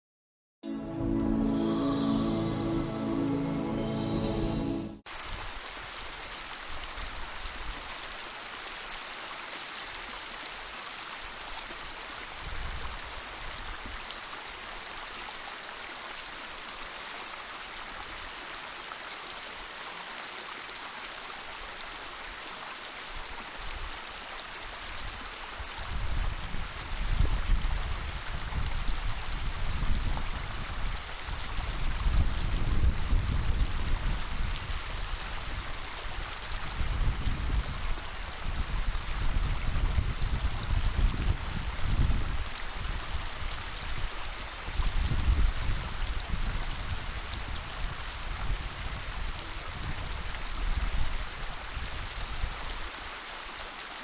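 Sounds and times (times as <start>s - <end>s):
deep low water rush: 0.6s - 54.0s
waterfall rushing and splashing: 0.7s - 31.9s, 45.9s - 54.0s.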